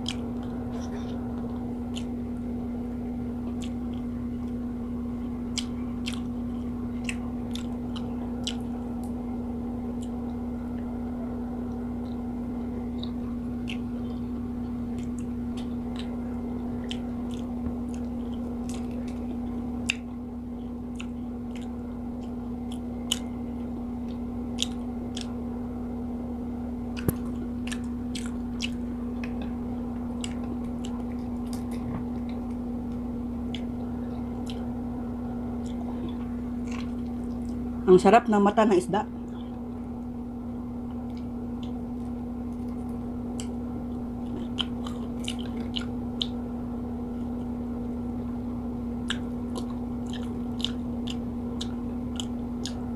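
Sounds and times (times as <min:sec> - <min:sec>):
chewing with mouth clicks: 0:00.0 - 0:02.4, 0:03.4 - 0:04.6, 0:05.2 - 0:09.2, 0:09.9 - 0:10.9, 0:11.7 - 0:25.4, 0:26.9 - 0:34.8, 0:35.4 - 0:37.6, 0:40.8 - 0:46.4, 0:49.0 - 0:52.9
low steady hum: 0:00.0 - 0:52.9.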